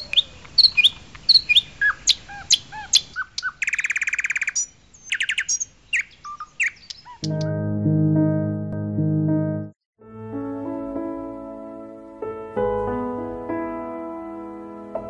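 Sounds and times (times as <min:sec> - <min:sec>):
songbirds chirping: 0:00.0 - 0:07.5
bird trill: 0:00.0 - 0:07.6.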